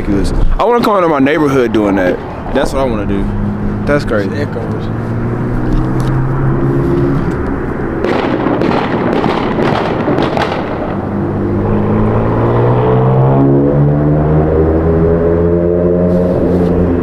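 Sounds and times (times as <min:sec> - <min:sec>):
car engine running: 0:00.9 - 0:12.9
exhaust cracks and pops: 0:05.5 - 0:11.2.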